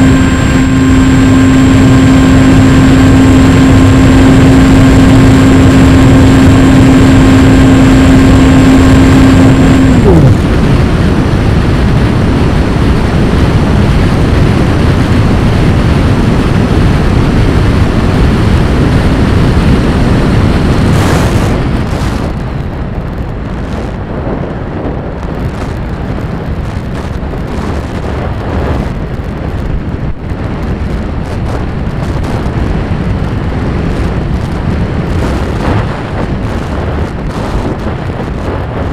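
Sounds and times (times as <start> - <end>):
model plane motor hum: 0.0 - 22.4
wind rush over microphone: 0.0 - 38.9.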